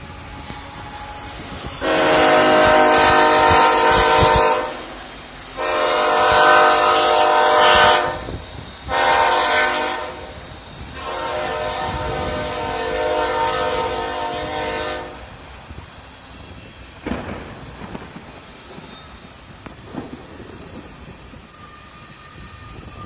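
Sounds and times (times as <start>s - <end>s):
locomotive horn blasts: 0.0s - 15.5s
steady hiss: 0.0s - 23.0s.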